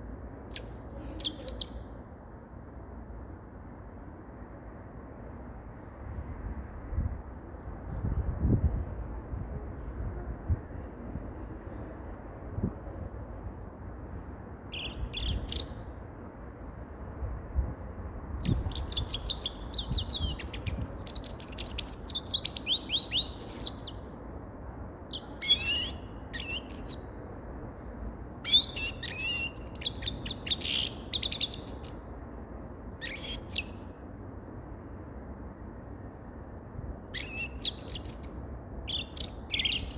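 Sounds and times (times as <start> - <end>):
low background noise: 0.0 - 39.9
bird twittering and chirping: 37.2 - 39.9.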